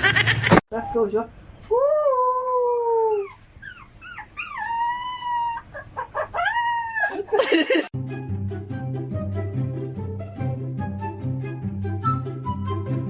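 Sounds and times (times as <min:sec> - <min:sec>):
dog howling and yipping: 0:02.7 - 0:07.4
music: 0:08.0 - 0:13.0.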